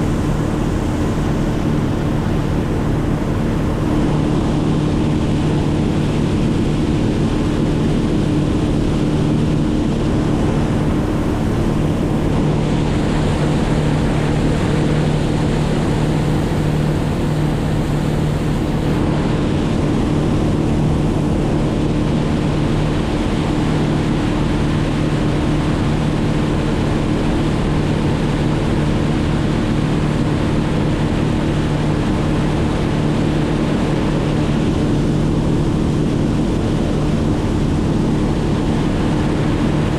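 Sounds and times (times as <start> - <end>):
motor droning: 0.0 - 24.3.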